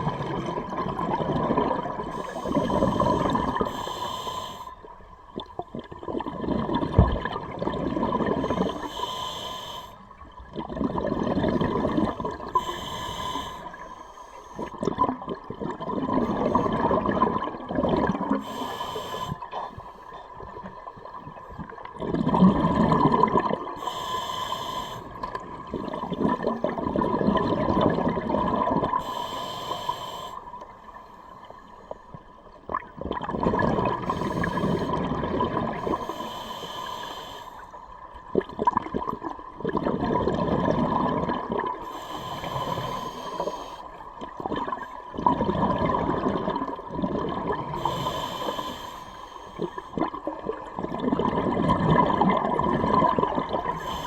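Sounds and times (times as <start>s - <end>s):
exhaled bubbles bursting: 0.0s - 3.6s, 5.4s - 8.7s, 10.4s - 12.6s, 14.7s - 18.4s, 20.4s - 23.8s, 25.4s - 29.0s, 32.7s - 36.0s, 38.3s - 41.8s, 44.2s - 47.8s, 49.9s - 53.9s
diver breathing through regulator: 2.1s - 4.8s, 8.4s - 10.1s, 12.4s - 14.8s, 18.3s - 20.2s, 23.7s - 25.5s, 28.9s - 32.0s, 34.0s - 35.1s, 35.7s - 37.9s, 41.8s - 44.0s, 47.7s - 50.1s, 53.6s - 54.0s.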